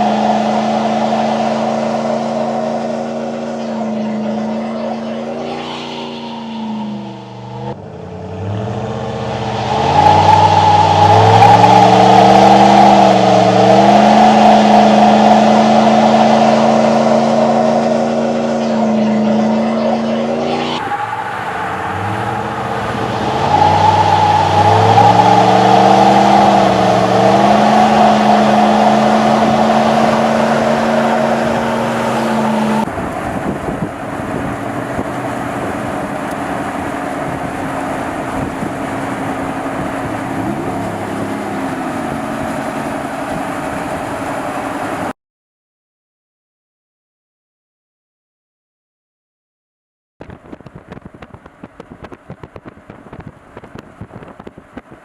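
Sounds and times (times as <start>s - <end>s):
pickup truck engine accelerating: 0.0s - 45.1s
steady engine drone: 0.0s - 45.1s.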